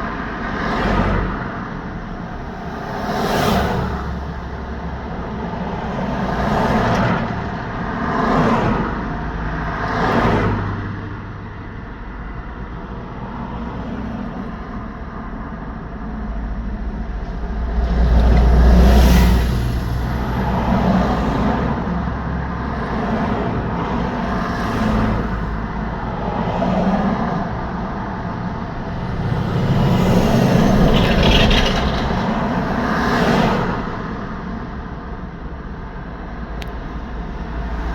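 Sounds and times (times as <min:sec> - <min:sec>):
cars and trucks passing: 0:00.0 - 0:37.9.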